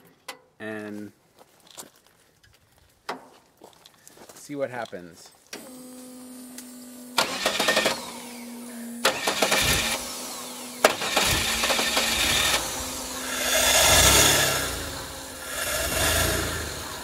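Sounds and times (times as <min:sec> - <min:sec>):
engine cranking on starter: 0:07.2 - 0:08.4, 0:09.0 - 0:17.0
steady hum: 0:08.0 - 0:17.0.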